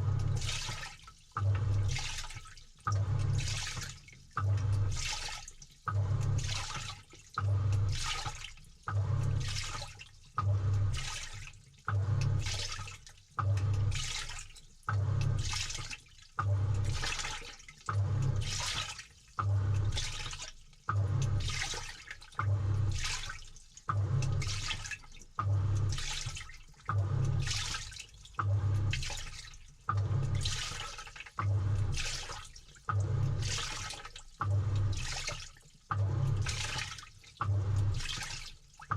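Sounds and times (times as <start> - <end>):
washing machine motor humming: 0.0 - 38.9
water sloshing: 19.7 - 38.9.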